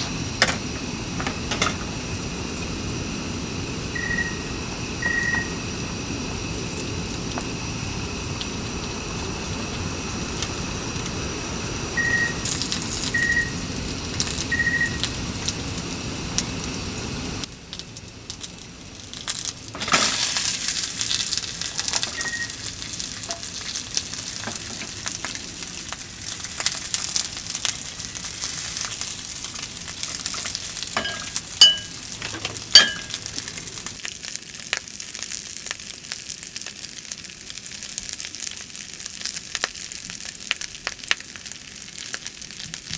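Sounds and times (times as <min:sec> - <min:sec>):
steady hum: 0:00.0 - 0:34.0
food sizzling in a pan: 0:00.0 - 0:42.9
short high beeps: 0:04.0 - 0:05.6, 0:12.0 - 0:12.4, 0:13.1 - 0:13.6, 0:14.5 - 0:15.0, 0:22.1 - 0:22.6
utensil clinking against pan: 0:31.0 - 0:33.2.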